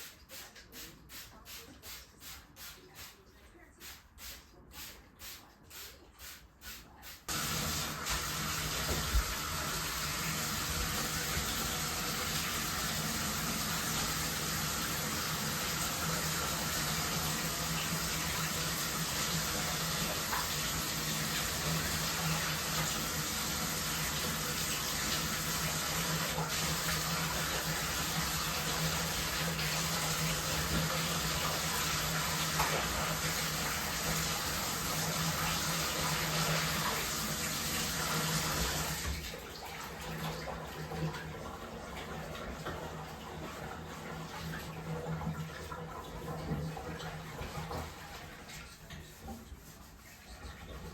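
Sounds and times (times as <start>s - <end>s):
soft rhythmic strokes: 0.0s - 7.3s, 48.4s - 50.9s
water gushing into bathtub: 0.0s - 50.9s.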